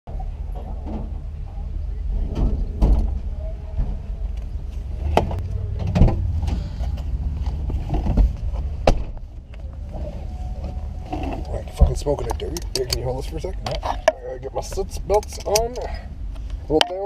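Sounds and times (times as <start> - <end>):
low vehicle rumble: 0.1 - 17.0
sharp knocks and clicks: 12.2 - 15.8.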